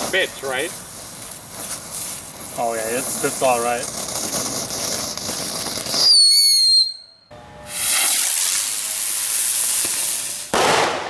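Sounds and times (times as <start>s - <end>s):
firework hissing spray: 0.0s - 6.4s, 7.6s - 11.0s
firework whistle: 4.2s - 11.0s
firework bang: 9.3s - 11.0s.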